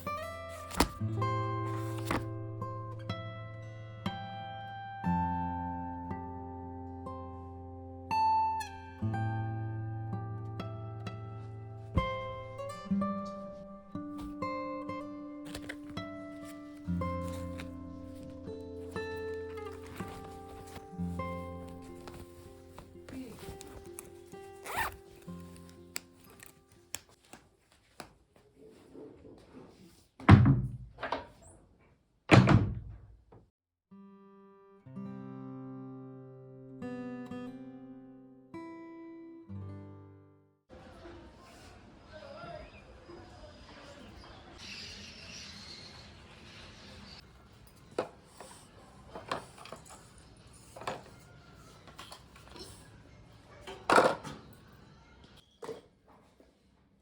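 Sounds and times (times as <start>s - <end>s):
rustling and handling noise: 0.0s - 2.4s, 13.2s - 14.6s, 15.3s - 30.2s.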